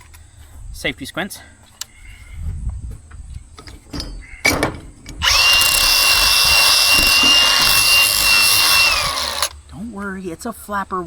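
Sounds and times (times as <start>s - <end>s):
light knocks: 2.9s - 9.5s
grinder grinding metal: 2.9s - 9.6s.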